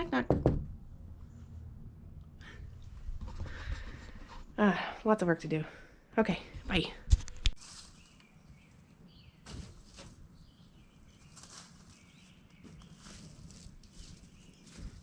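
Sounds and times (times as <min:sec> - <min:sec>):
soft rustles: 0:07.1 - 0:08.4, 0:11.1 - 0:15.0.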